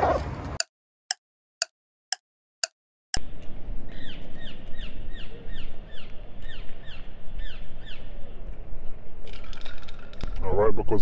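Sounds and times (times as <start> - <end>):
street ambience: 3.2 - 11.0.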